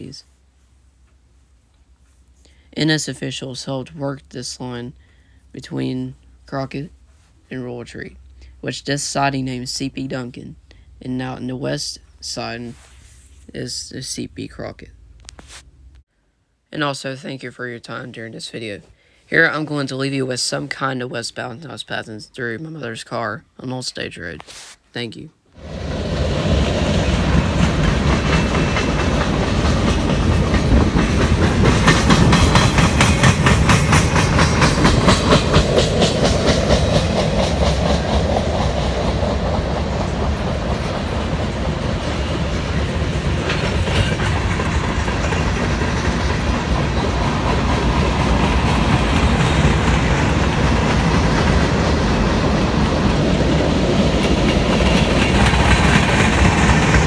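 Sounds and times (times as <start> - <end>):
freight train rumbling past: 25.6 - 57.0
train wheels clicking over rail joints: 25.6 - 57.0.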